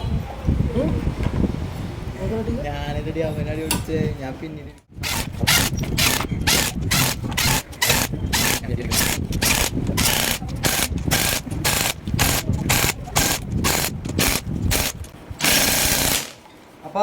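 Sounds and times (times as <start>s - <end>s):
hand tool rasping on metal: 5.0s - 16.3s.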